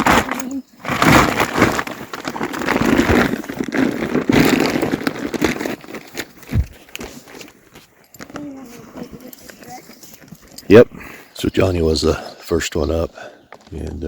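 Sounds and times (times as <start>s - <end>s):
feed rustling and crinkling: 0.0s - 10.7s.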